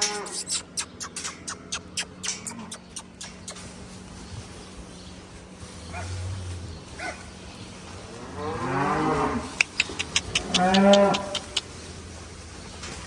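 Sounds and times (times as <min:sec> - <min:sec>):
sharp clicks: 0:00.0 - 0:03.6, 0:09.6 - 0:11.7
cattle mooing: 0:08.1 - 0:11.6.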